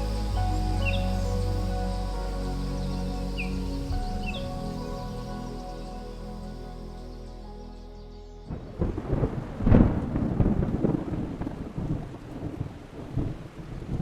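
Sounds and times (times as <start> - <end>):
steady rain: 0.0 - 6.6, 8.5 - 14.0
music: 0.0 - 9.0
thunder rumbling: 8.5 - 14.0.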